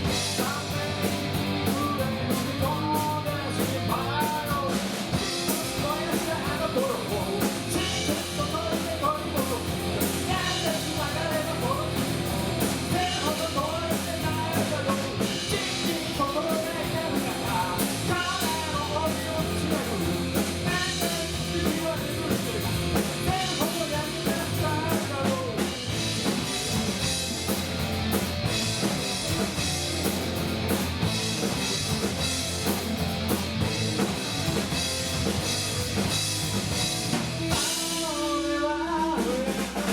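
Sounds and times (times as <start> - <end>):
person singing: 0.0 - 12.2, 12.9 - 25.7, 37.5 - 39.9
drum kit: 0.0 - 39.9
guitar: 0.0 - 39.9
rock band playing: 0.0 - 39.9.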